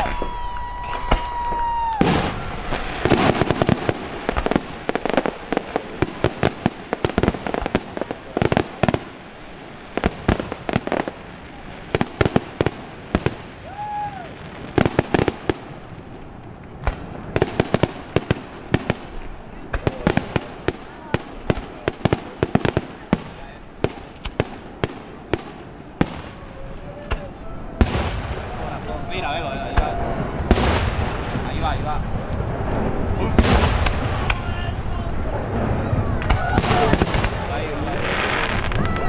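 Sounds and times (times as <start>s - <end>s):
firework whistle: 0.0s - 3.6s, 13.6s - 14.4s
fireworks bangs and crackles: 0.0s - 39.0s.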